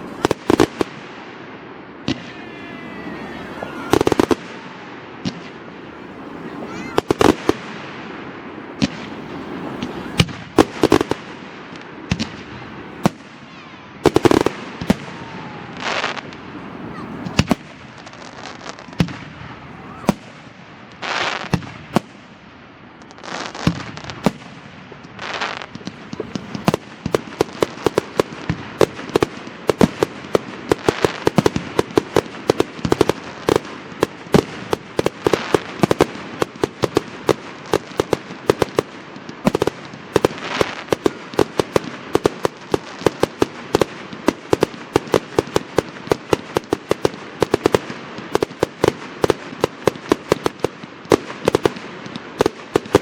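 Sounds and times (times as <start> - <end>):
fireworks bangs: 0.0 - 53.0
fireworks hissing bursts: 0.0 - 53.0
rapid crackle of small pops: 25.4 - 53.0.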